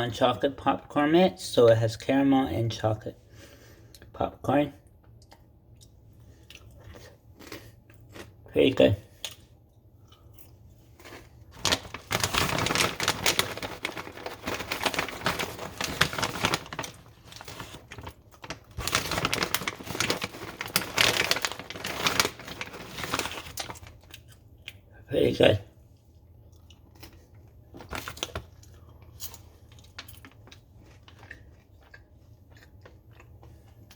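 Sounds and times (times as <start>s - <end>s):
plastic snack bag crinkling: 10.9s - 24.4s, 26.8s - 33.9s.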